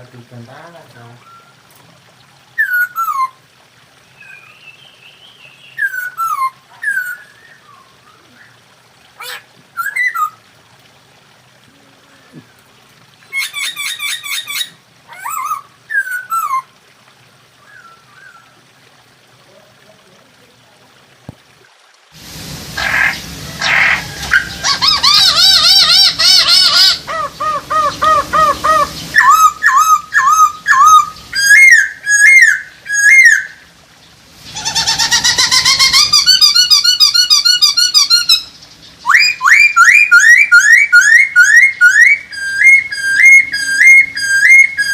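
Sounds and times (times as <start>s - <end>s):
birds whistling song: 4.2s - 8.6s, 22.8s - 33.6s, 34.5s - 44.9s.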